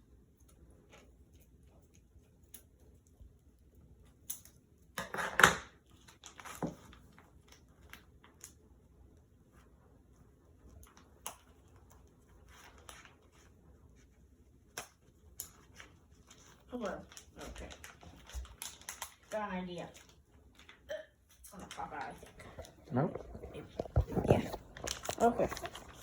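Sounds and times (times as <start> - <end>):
plastic packaging crinkling: 5.8 - 8.5, 14.7 - 20.9, 21.5 - 26.0.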